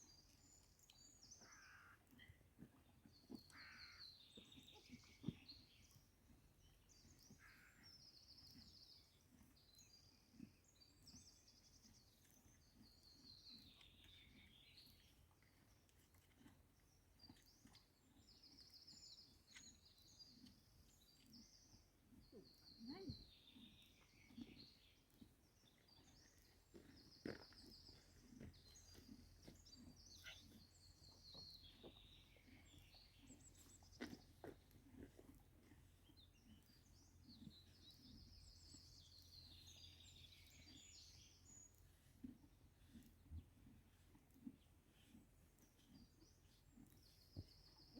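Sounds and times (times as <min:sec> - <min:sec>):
faint songbird trills and chirps: 0:02.9 - 0:34.7, 0:36.0 - 0:43.7
faint bird chirping: 0:17.3 - 0:25.0, 0:25.6 - 0:34.4.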